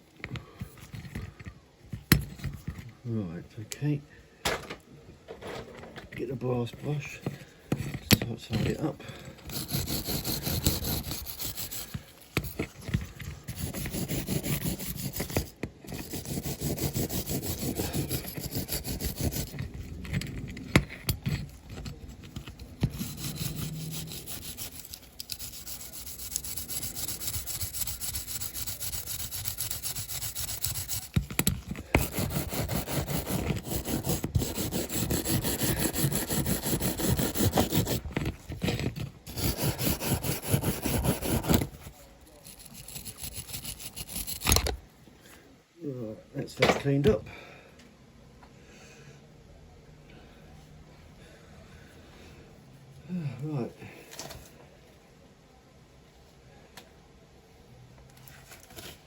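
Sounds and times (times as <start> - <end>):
wire brush scrubbing metal: 9.5 - 12.6, 13.4 - 19.8, 21.1 - 44.6.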